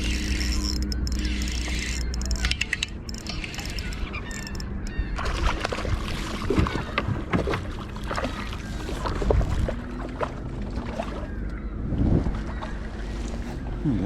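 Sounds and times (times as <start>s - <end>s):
small clicks and knocks: 0.3s - 5.0s
water sloshing against kayak hull: 5.1s - 13.8s.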